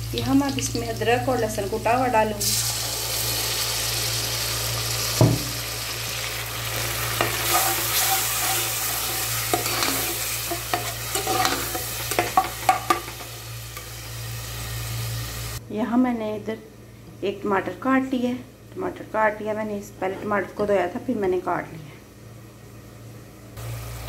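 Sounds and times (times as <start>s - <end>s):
onions sizzling in oil: 0.0s - 15.6s, 23.6s - 24.0s
sharp knock: 5.2s - 5.5s
steel ladle scraping pot: 7.1s - 13.1s.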